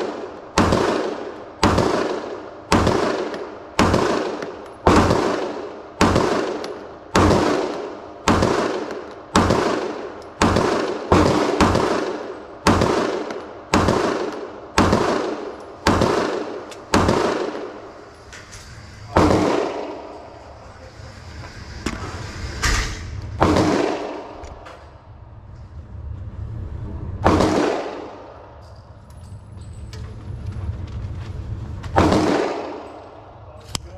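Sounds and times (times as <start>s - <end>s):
gunshots with ringing tail: 0.0s - 18.0s, 19.1s - 20.4s, 23.4s - 24.6s, 27.2s - 28.6s, 32.0s - 33.5s.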